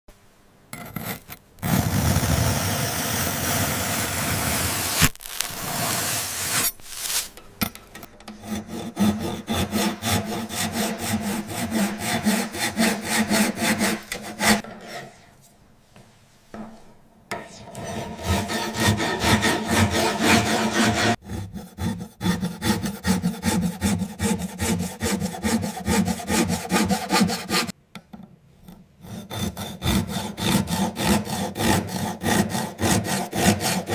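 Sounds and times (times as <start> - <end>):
steady scraping: 3.1 - 15.6, 17.3 - 21.2
blade crunching brittle models: 5.0 - 5.7.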